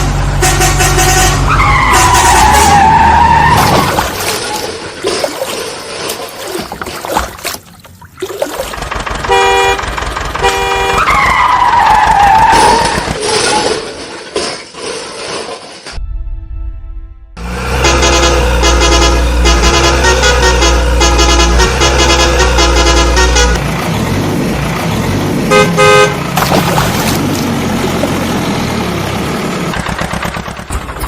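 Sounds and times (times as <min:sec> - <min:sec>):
short horn toots: 0:17.7 - 0:23.6.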